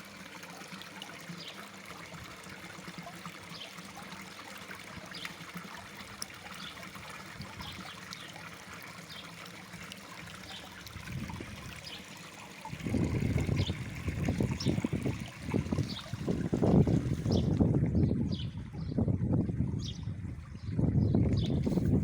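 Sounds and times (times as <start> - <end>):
water trickling and splashing: 0.0 - 22.0
wind buffeting microphone: 10.9 - 11.8, 12.7 - 22.0.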